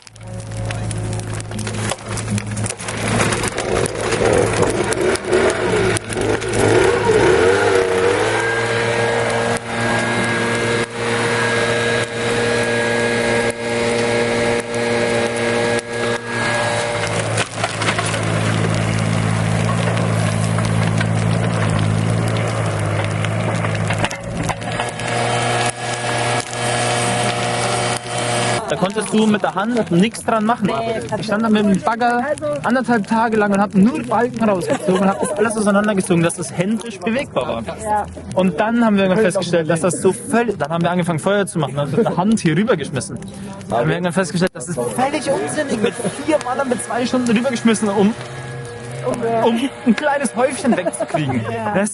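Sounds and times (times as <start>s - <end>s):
bonfire crackling and popping: 0.0s - 51.9s
low hum of held tones: 44.8s - 51.8s.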